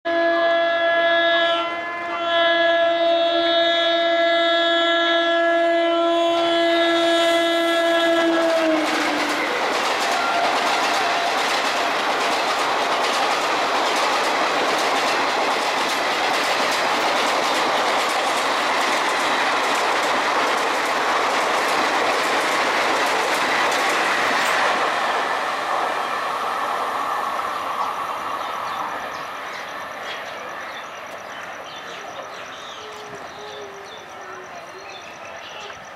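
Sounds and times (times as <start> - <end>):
train wheels clattering over rail joints: 7.8 - 25.9.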